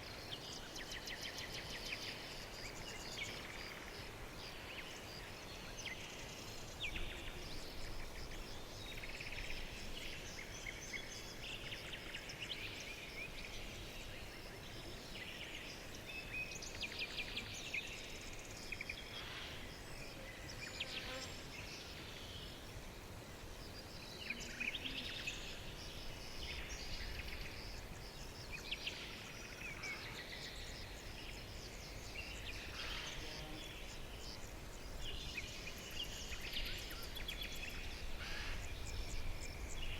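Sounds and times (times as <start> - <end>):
small birds chirping and singing: 23.6 - 39.9.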